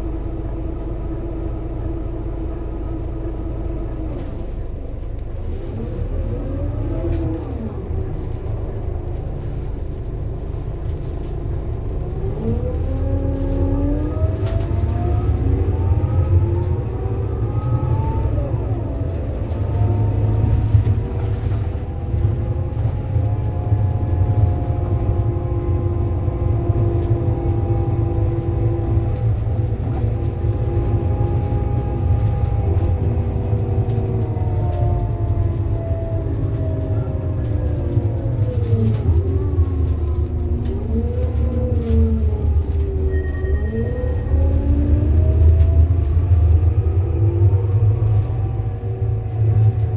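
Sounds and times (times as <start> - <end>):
bus diesel engine pulling under load: 0.0 - 49.9
drivetrain whining: 0.0 - 49.9.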